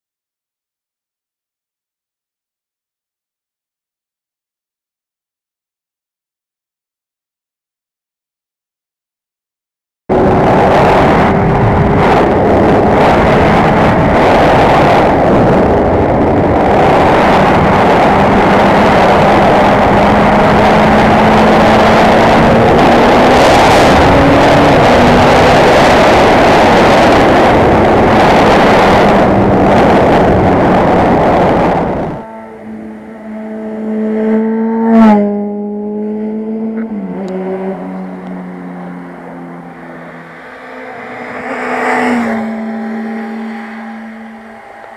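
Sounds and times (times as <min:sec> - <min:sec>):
loud rushing noise: 0:10.1 - 0:35.4, 0:37.0 - 0:44.9
motorcycle engine running: 0:10.1 - 0:44.9.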